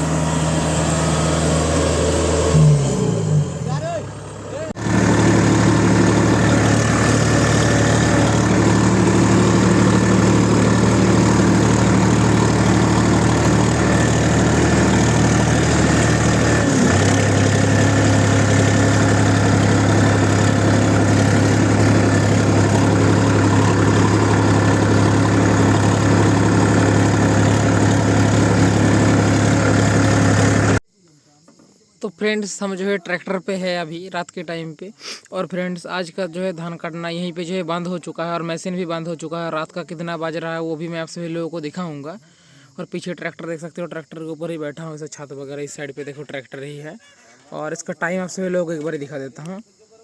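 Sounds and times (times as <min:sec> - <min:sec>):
diesel engine running: 0:00.0 - 0:30.8.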